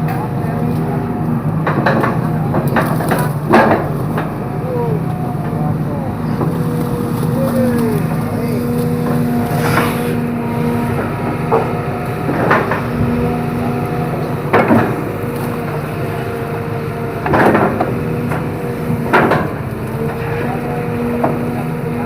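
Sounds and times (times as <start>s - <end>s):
excavator diesel engine running: 0.0s - 22.0s
sharp cracking knocks: 11.3s - 15.9s.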